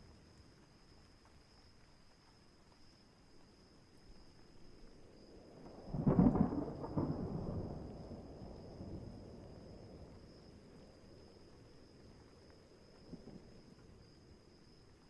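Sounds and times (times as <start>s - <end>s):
faint rain: 0.0s - 15.0s
thunderclap and rumble: 5.7s - 10.4s.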